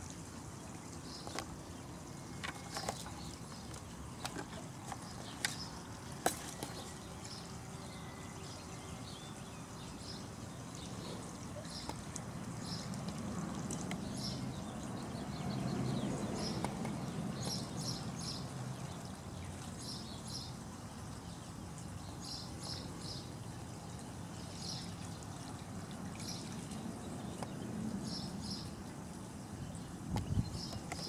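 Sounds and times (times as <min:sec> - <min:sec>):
bird chirping: 0:01.0 - 0:13.0, 0:13.8 - 0:23.3.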